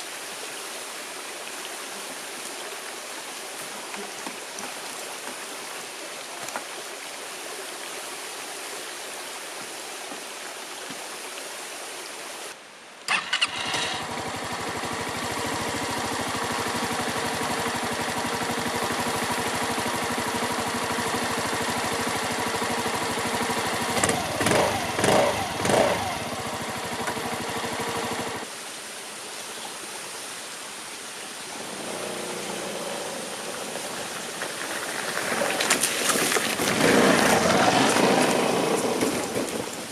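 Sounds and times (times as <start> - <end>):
running water hiss: 0.0 - 39.9
motor scooter engine idling: 13.1 - 28.5.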